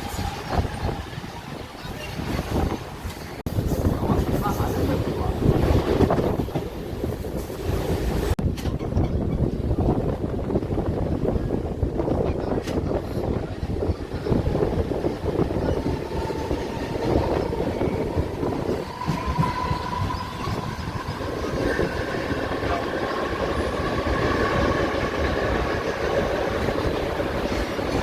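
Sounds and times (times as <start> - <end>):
train wheels rumbling on track: 0.0 - 28.0.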